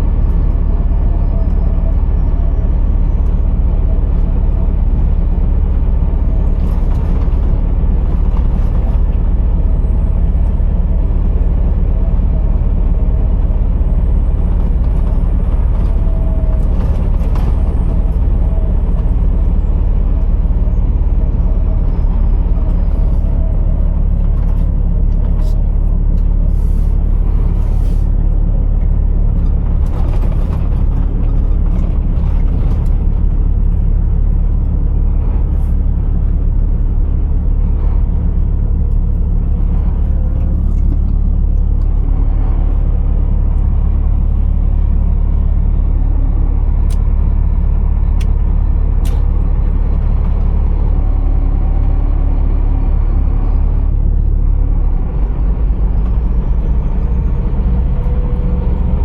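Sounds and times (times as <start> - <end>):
truck diesel engine rumbling: 0.0 - 59.0.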